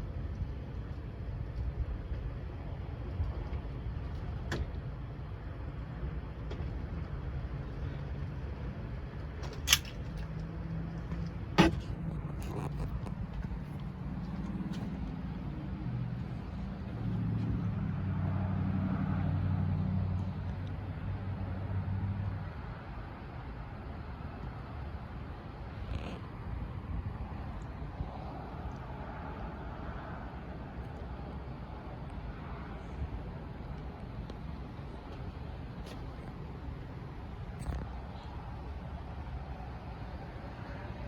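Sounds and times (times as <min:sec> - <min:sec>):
vehicle engine humming: 0:00.0 - 0:41.0.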